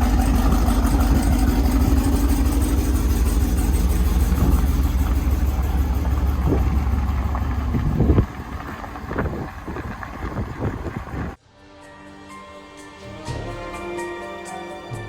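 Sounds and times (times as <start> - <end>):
car engine running: 0.0 - 11.4.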